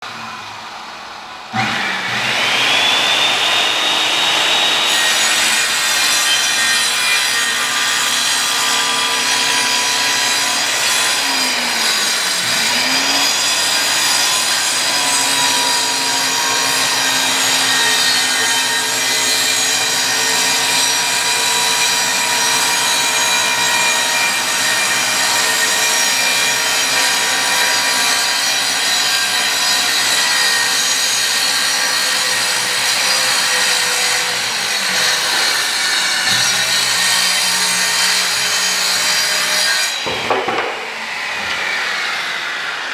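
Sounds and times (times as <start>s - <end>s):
power saw cutting wood: 1.5s - 42.9s.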